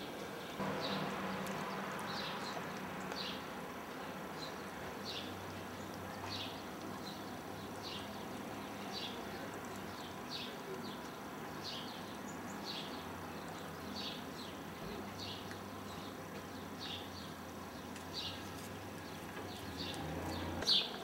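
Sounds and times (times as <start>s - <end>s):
outdoor background noise: 0.0s - 21.0s
bird chirping: 0.4s - 14.6s
low hum: 0.6s - 4.5s.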